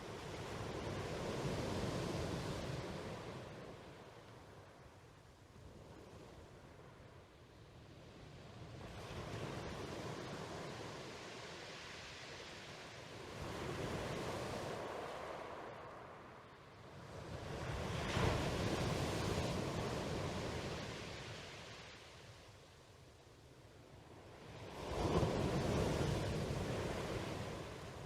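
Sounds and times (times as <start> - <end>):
ocean waves washing: 24.4 - 28.0.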